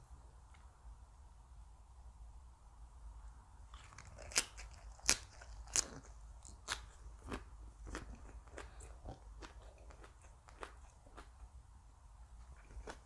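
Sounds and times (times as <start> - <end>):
crunching of raw vegetables chewed: 3.7 - 11.5, 12.4 - 13.0.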